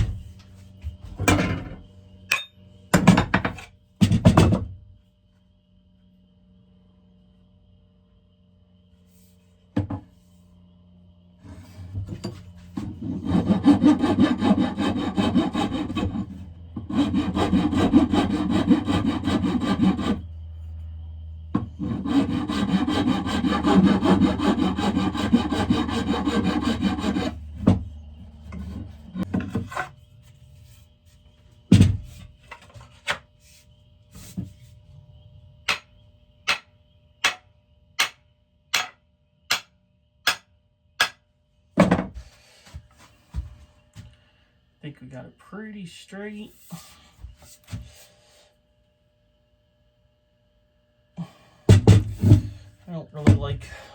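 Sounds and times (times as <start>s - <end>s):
rasping scrape on wood: 12.8s - 20.3s, 21.6s - 27.8s
sharp knocks: 35.7s - 35.9s, 38.0s - 41.2s.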